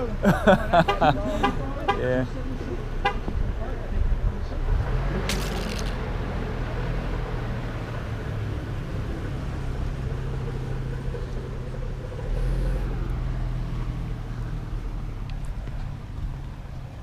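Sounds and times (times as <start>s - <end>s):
car engine idling: 6.4s - 17.0s.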